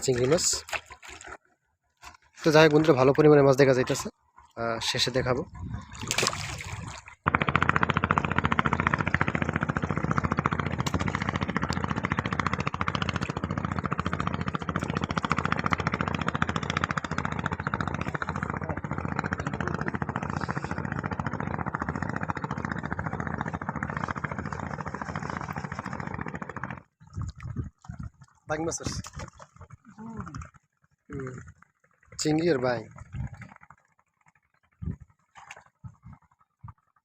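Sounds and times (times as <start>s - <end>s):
engine chugging: 0.0s - 37.0s.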